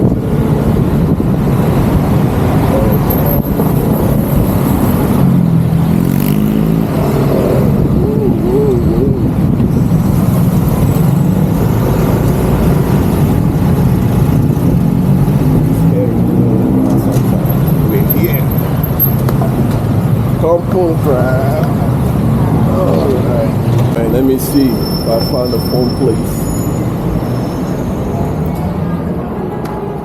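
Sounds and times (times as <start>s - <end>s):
vehicle engine revving: 0.0s - 20.4s
road traffic noise: 0.0s - 30.0s.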